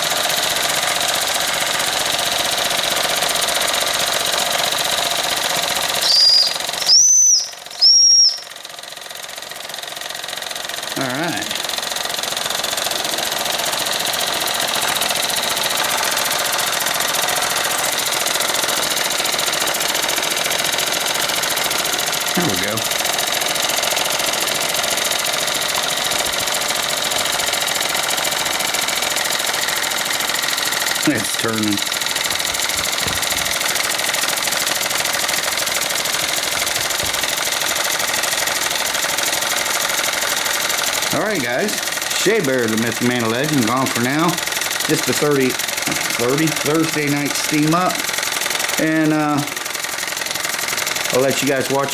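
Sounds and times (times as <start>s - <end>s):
model steam engines chuffing: 0.0s - 51.9s
steam hissing: 5.5s - 8.6s.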